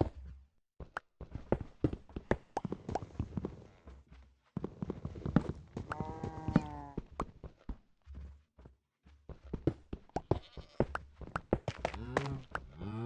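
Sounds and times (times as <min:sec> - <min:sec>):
clattering hoof steps: 0:01.2 - 0:12.8.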